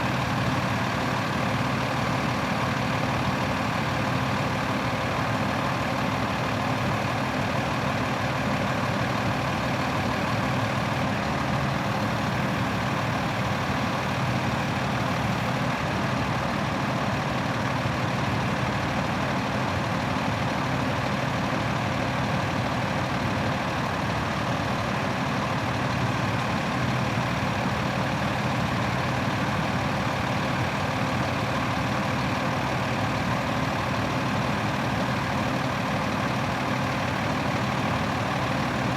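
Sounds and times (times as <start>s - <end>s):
truck engine idling: 0.0s - 11.1s, 11.8s - 15.7s, 25.2s - 38.9s.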